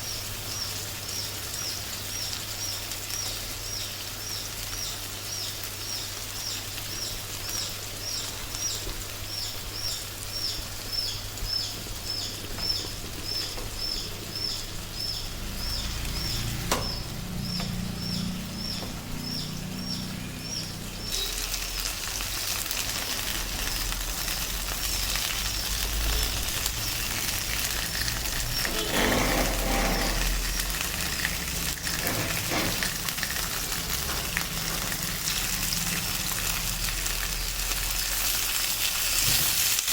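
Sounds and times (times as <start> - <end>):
chicken sizzling in a pan: 0.0 - 39.9.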